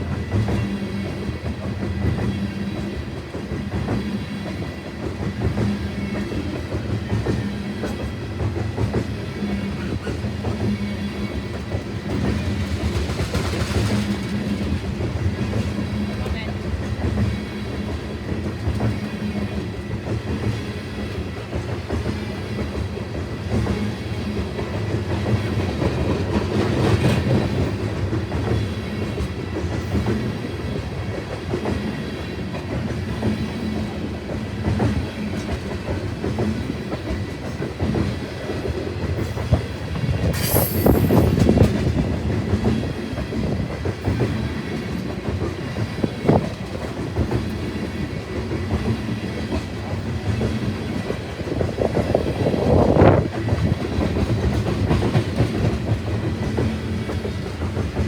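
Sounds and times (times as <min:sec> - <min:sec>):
train cars rolling past: 0:34.4 - 0:43.0
high wheel squeal: 0:40.4 - 0:41.5.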